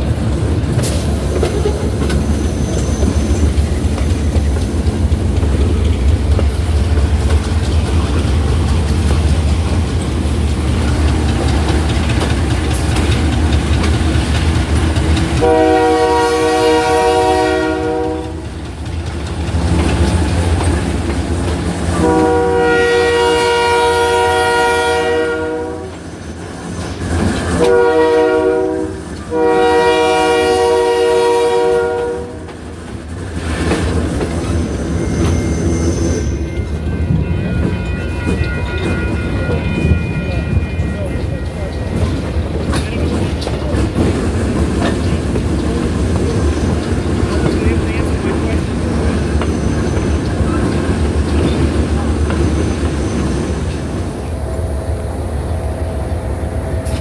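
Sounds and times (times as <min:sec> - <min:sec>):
wheels clicking over rail joints: 0:00.0 - 0:23.7, 0:32.0 - 0:54.3
train rumbling along track: 0:00.0 - 0:57.0
locomotive air horn: 0:15.4 - 0:18.5, 0:21.9 - 0:26.0, 0:27.5 - 0:32.5.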